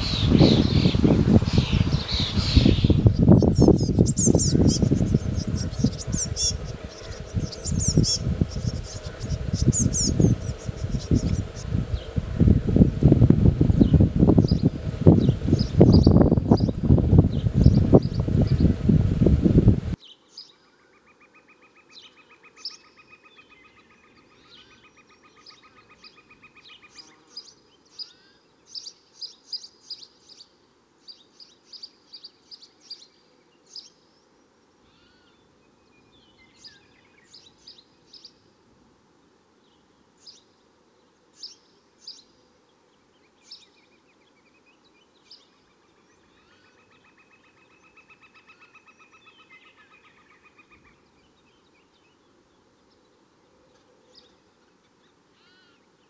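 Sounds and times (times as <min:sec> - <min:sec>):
small bird chirping: 0:00.0 - 0:18.9
steady pulsing buzz: 0:00.0 - 0:20.0.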